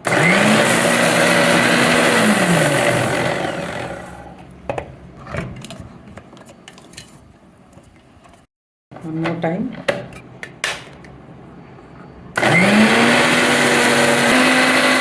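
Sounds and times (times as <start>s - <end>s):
mixer grinder motor winding down: 0.0s - 4.4s, 12.4s - 15.0s.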